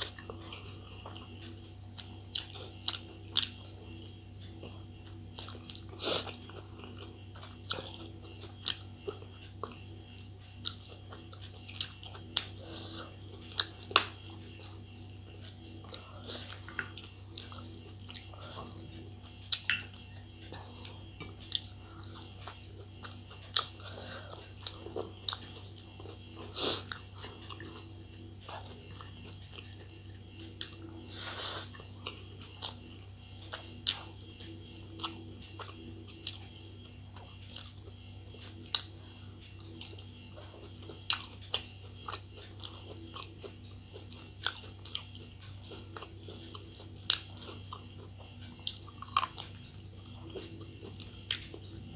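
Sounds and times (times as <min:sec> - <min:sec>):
low hum: 0:00.0 - 0:51.9
person chewing and lip smacking: 0:00.0 - 0:51.9.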